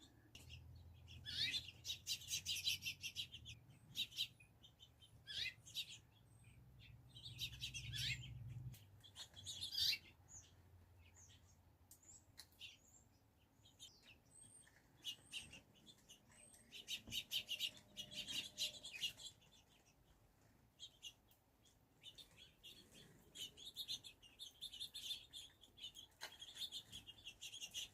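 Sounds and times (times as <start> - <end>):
birds chirping and chattering: 0.0 - 27.9.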